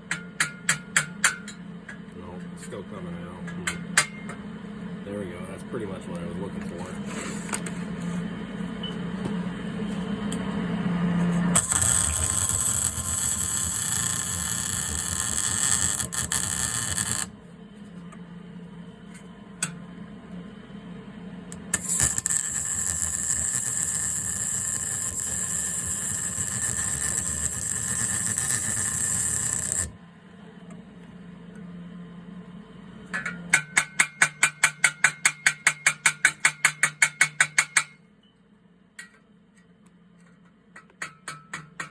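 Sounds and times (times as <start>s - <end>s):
harsh metalworking noise: 11.5s - 17.4s, 21.5s - 30.0s, 33.1s - 38.0s.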